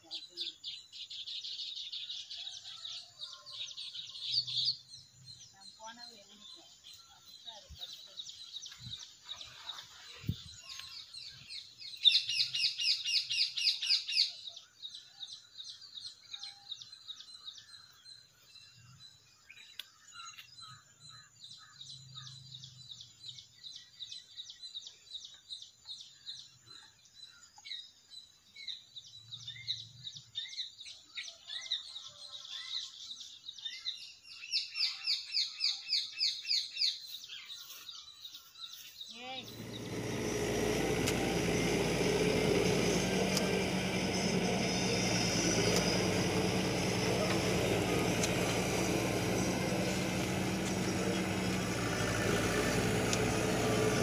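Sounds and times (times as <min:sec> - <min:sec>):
birds chirping: 0:00.0 - 0:54.0
loud rapid bird trill: 0:09.4 - 0:18.3, 0:38.7 - 0:54.0.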